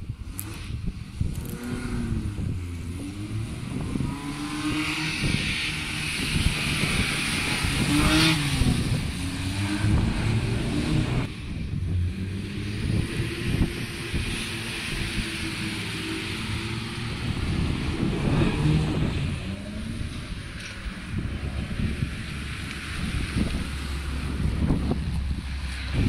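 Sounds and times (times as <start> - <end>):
another car engine: 0.2 - 26.0
rally car engine revving past: 12.1 - 20.2.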